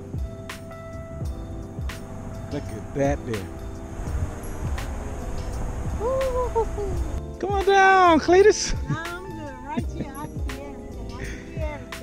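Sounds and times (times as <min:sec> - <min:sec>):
soft background music: 0:00.0 - 0:12.0
wind buffeting microphone: 0:00.2 - 0:07.3.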